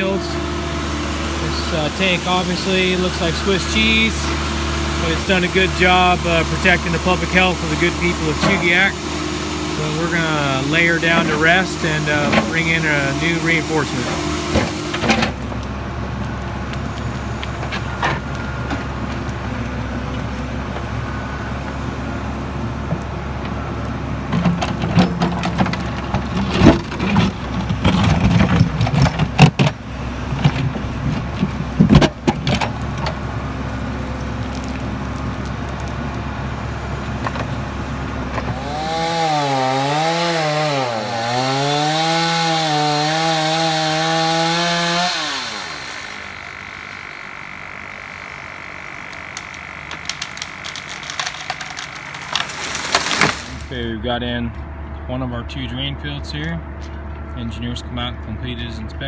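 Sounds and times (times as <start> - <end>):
higher motor rising and falling: 0.0 - 15.4, 38.5 - 53.7
heavy equipment engine running: 0.0 - 59.0.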